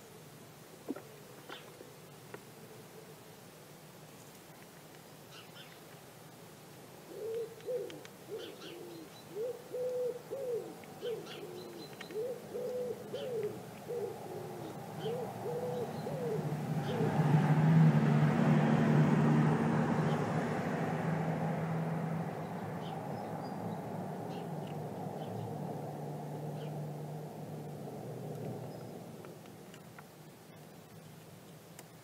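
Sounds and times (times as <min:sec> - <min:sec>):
bird hooting cooing calls: 0:07.1 - 0:17.4
passing vehicle engine and tyres: 0:14.7 - 0:29.8.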